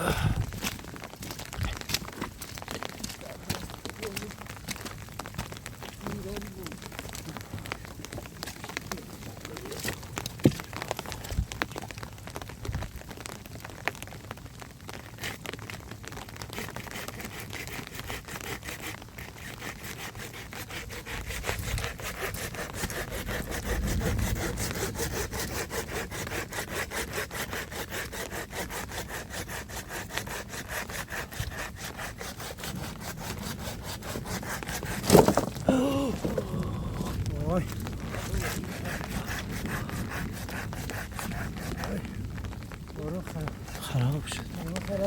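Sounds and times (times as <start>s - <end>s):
hand saw cutting wood: 16.5s - 36.7s, 37.4s - 42.0s.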